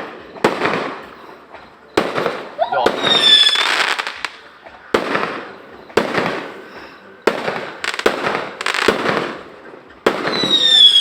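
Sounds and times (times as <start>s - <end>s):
fireworks bangs: 0.0s - 11.0s
fireworks crackle: 0.0s - 11.0s
high whistle: 2.6s - 3.8s.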